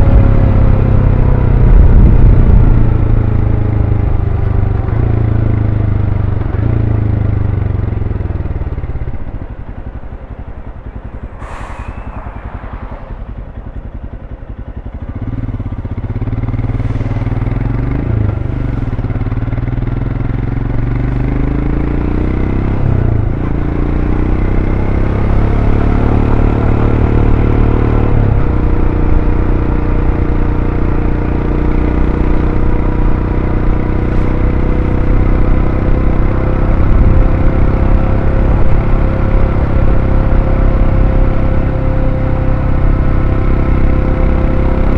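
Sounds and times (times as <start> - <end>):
motorcycle engine accelerating: 0.0 - 44.9
short burst of noise: 10.7 - 14.3.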